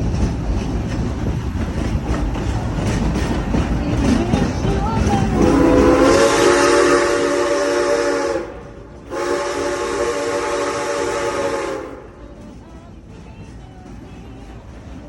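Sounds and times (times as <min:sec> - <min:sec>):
steam hissing: 0:00.0 - 0:12.8
steam locomotive whistle: 0:05.3 - 0:12.3.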